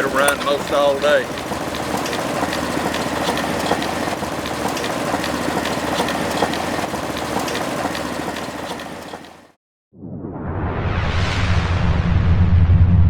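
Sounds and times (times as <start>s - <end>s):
small engine clattering: 0.0s - 9.6s.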